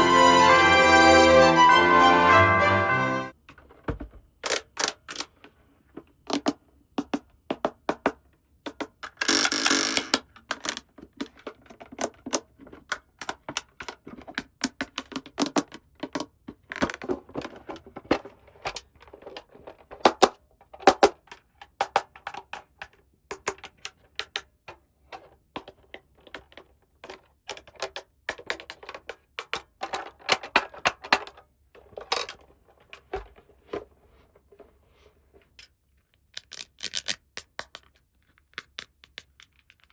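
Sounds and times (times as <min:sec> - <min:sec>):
plastic toy pieces clicking: 0:04.4 - 0:05.4, 0:08.7 - 0:17.1, 0:18.7 - 0:24.5, 0:25.6 - 0:31.4, 0:36.2 - 0:39.9.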